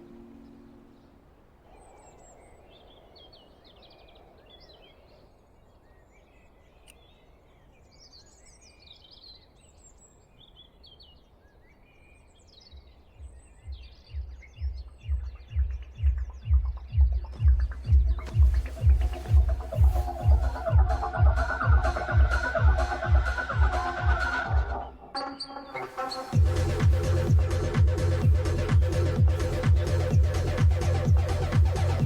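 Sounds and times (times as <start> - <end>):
small birds chirping: 0.0 - 32.0
deep bass beat: 13.2 - 25.0, 26.2 - 32.0.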